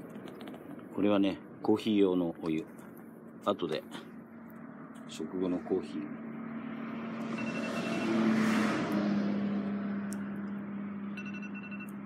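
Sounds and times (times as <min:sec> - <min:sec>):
steady low hum: 0:00.0 - 0:07.7
vehicle passing by: 0:03.4 - 0:12.0.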